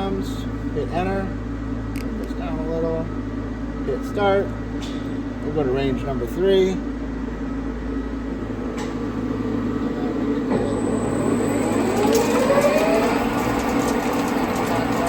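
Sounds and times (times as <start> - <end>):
lathe machine hum: 8.2 - 15.0
lathe spindle whine: 8.3 - 15.0.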